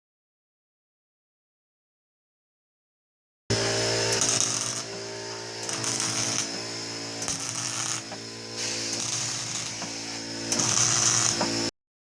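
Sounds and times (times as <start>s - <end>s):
electric machine humming and whirring: 3.5s - 11.8s.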